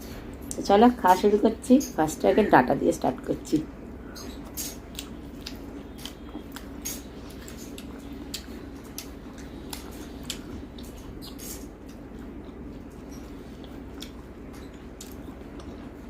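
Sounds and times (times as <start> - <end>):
steady low hum: 0.0 - 16.0
eating by hand squishing: 4.1 - 16.0.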